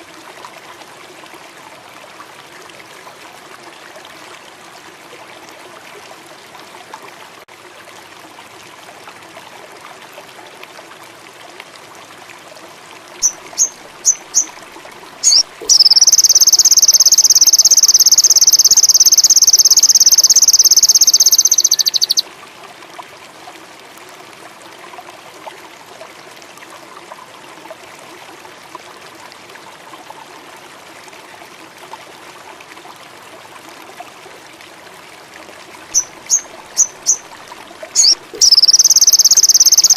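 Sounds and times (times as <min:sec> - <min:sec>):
running water: 0:00.0 - 0:39.9
songbird chirping and trilling: 0:13.2 - 0:14.5, 0:15.2 - 0:22.2, 0:35.9 - 0:37.2, 0:38.0 - 0:39.9.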